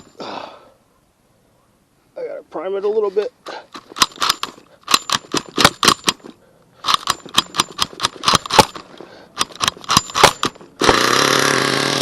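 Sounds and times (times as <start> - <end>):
small engine running: 9.4 - 12.0.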